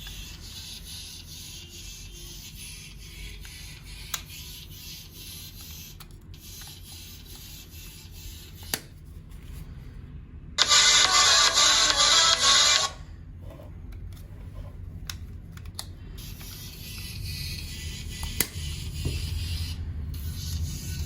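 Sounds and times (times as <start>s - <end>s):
rubbing and handling noise: 10.6s - 17.9s.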